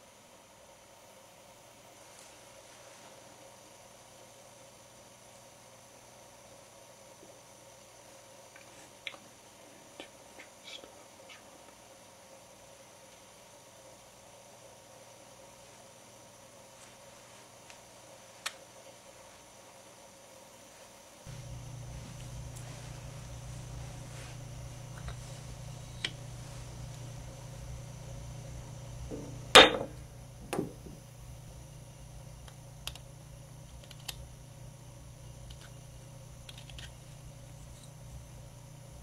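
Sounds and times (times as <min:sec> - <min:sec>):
steady low hum: 0:00.0 - 0:39.0
small clicks and taps: 0:32.4 - 0:33.1.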